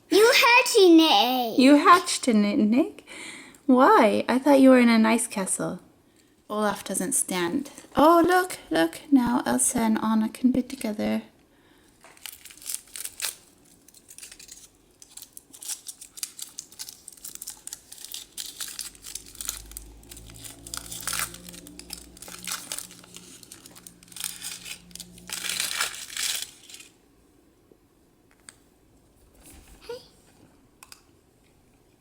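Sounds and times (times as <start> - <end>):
foil wrapper crinkling and tearing: 12.0 - 27.0.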